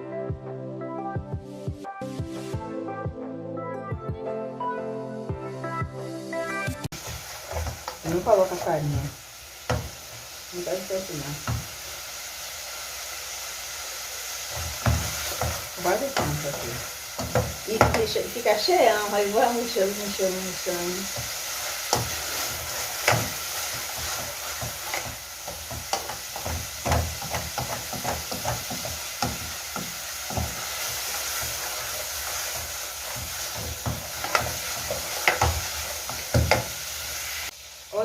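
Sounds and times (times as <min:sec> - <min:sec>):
food sizzling in a pan: 0:06.3 - 0:38.0
spoon scraping a pan: 0:07.0 - 0:09.0, 0:21.0 - 0:37.4.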